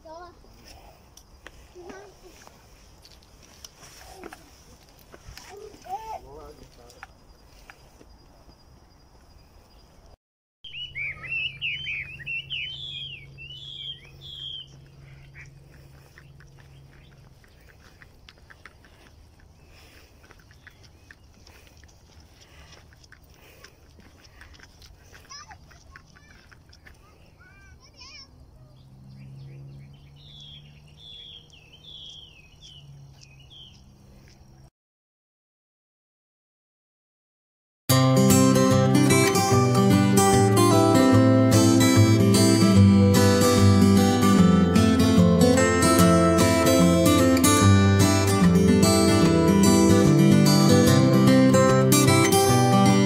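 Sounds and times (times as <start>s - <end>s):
small bird chirping rapidly: 10.7s - 34.6s.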